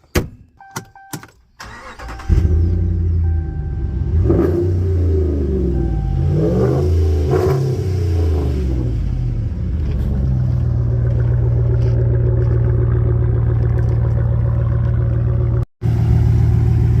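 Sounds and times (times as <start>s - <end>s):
truck engine revving and idling: 1.7s - 17.0s.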